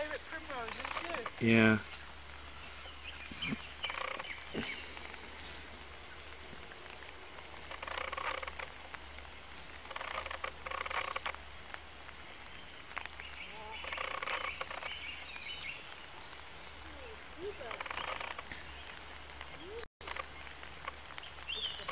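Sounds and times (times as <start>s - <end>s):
harsh bird calls: 0.0s - 6.3s, 12.6s - 20.6s
faint bird chirps: 1.8s - 5.6s.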